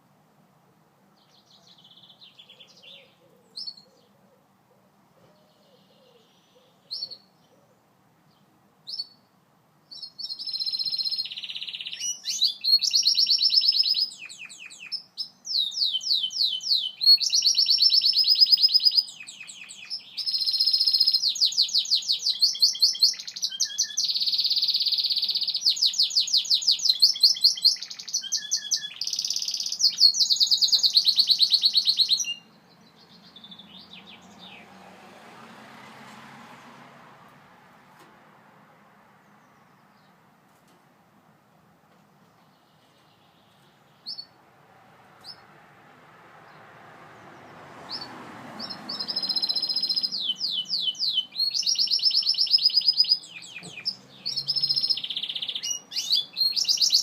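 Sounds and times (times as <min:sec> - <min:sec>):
canary singing trills: 0:01.2 - 0:04.2, 0:05.3 - 0:07.7, 0:08.3 - 0:09.3, 0:09.9 - 0:34.8, 0:42.4 - 0:44.4, 0:45.2 - 0:45.5, 0:47.9 - 0:57.0.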